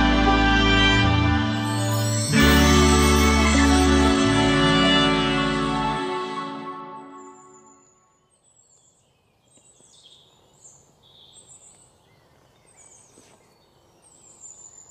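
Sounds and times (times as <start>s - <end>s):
soundtrack music: 0.0s - 7.6s
small birds chirping: 7.2s - 14.9s.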